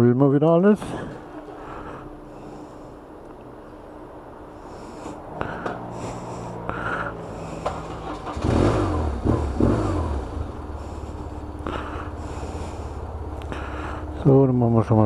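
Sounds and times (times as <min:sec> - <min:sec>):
motorcycle engine revving and idling: 0:05.3 - 0:15.0.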